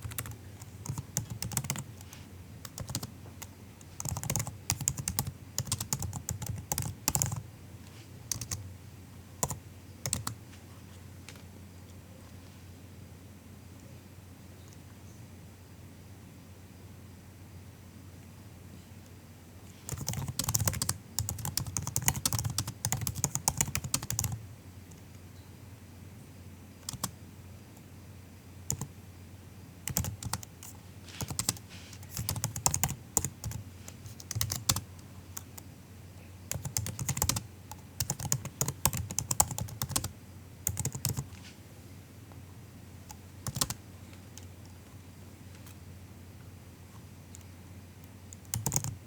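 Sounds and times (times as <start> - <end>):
laptop keyboard typing: 0.0 - 7.4, 8.3 - 8.6, 9.4 - 10.4, 19.9 - 24.4, 26.8 - 27.1, 28.7 - 28.9, 29.8 - 35.6, 36.5 - 41.3, 43.1 - 43.8, 48.3 - 49.0.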